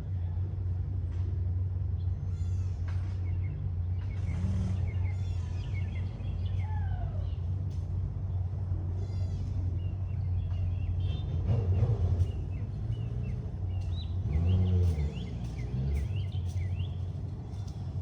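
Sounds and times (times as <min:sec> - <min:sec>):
vehicle engines rumbling: 0:00.0 - 0:18.0
small birds chirping: 0:09.0 - 0:18.0.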